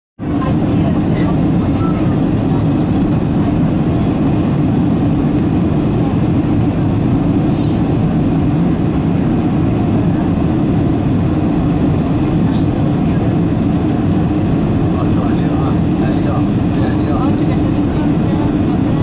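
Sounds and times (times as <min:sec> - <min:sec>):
airliner cabin roar: 0:00.2 - 0:19.0.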